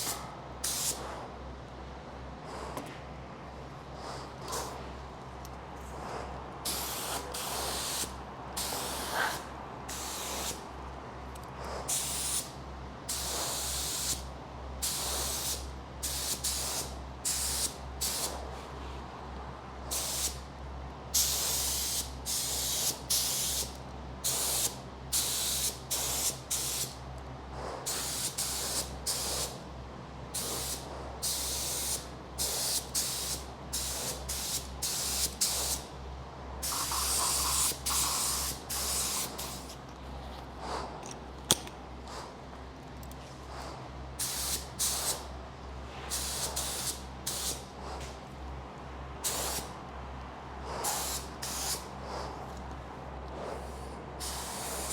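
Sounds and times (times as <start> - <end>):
spray gun hissing: 6.7 - 10.6, 11.9 - 12.5, 30.4 - 35.8, 36.6 - 39.7, 44.2 - 45.2, 46.1 - 47.6, 49.2 - 49.7, 50.8 - 51.8, 54.2 - 54.9.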